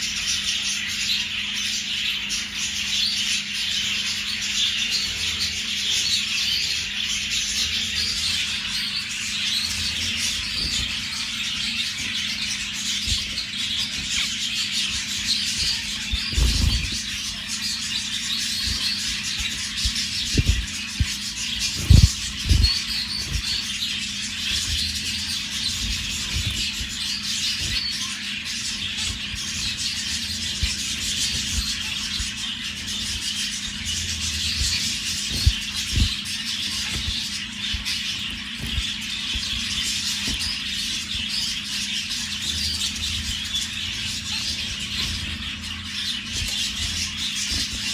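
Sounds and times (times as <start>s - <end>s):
finches chattering: 0.0s - 47.9s
steady low hum: 0.0s - 47.9s
dull thumps: 18.7s - 23.8s.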